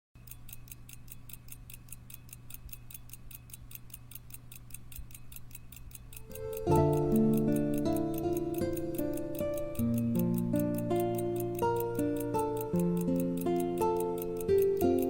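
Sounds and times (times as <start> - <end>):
pocket watch ticking: 0.2 - 15.0
music: 6.3 - 15.0.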